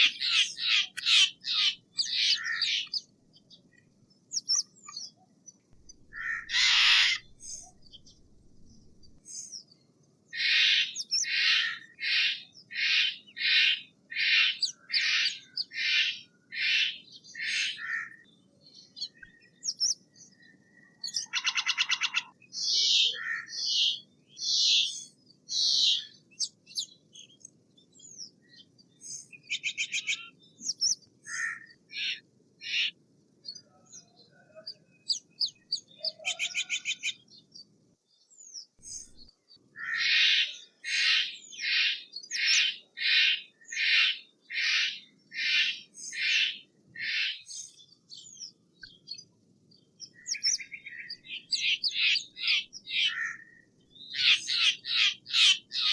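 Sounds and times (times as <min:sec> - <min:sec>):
jay harsh screechy calls: 0:00.0 - 0:02.9, 0:06.1 - 0:07.4, 0:21.2 - 0:22.3, 0:51.5 - 0:53.4, 0:54.2 - 0:55.9.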